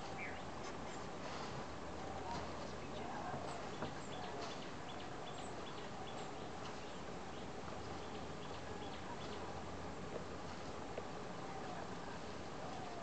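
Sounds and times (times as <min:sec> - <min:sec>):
birds chirping: 0:00.0 - 0:01.0, 0:02.8 - 0:09.6.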